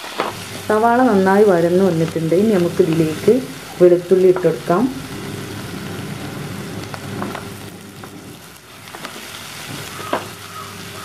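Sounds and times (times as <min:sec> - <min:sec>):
onions sizzling in hot oil: 0:00.0 - 0:11.0
wooden spatula knocking on pot: 0:09.7 - 0:10.4.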